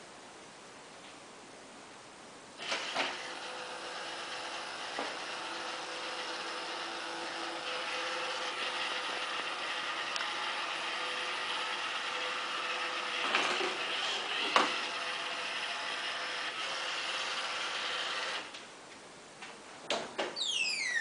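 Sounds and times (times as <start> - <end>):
robot vacuum motors whirring: 2.6 - 18.6
falling electronic chirp: 20.4 - 21.0.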